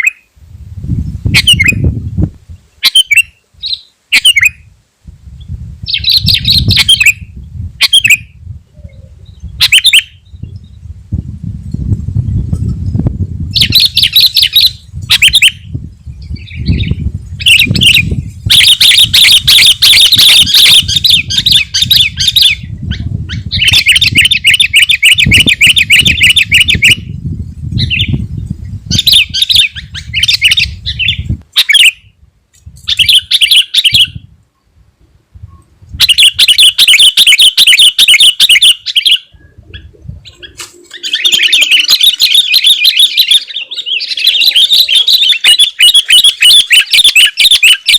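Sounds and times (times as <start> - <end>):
bulbul chattering song: 1.4 - 1.9, 2.8 - 4.7, 5.9 - 10.6, 13.5 - 22.8, 23.4 - 27.1, 36.0 - 47.9.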